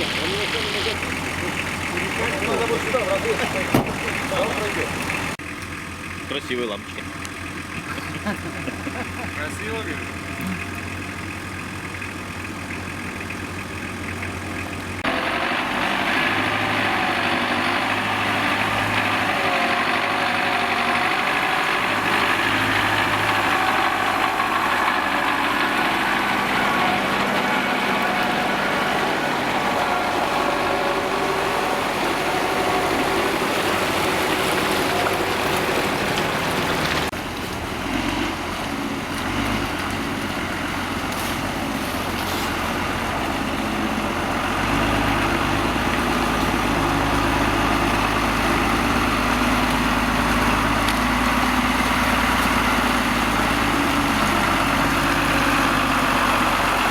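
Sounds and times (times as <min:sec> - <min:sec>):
diesel truck engine revving: 0:00.0 - 0:56.9.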